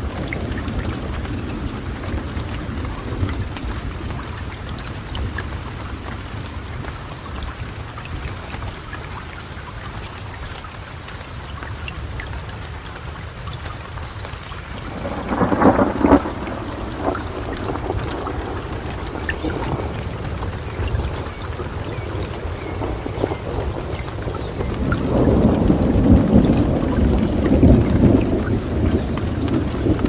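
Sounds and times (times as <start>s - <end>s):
thunder rumbling: 0.0s - 7.4s, 14.6s - 30.0s
rain drop ticks: 0.0s - 30.0s
steady rain: 0.0s - 30.0s.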